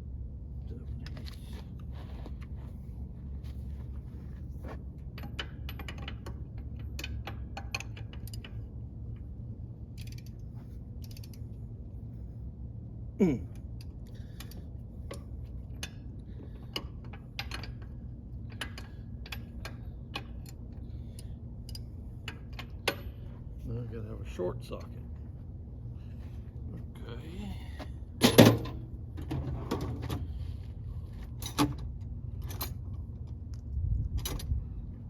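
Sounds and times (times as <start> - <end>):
steady low hum: 0.0 - 35.0
ratchet wrench clicking: 10.0 - 10.4, 11.0 - 11.4.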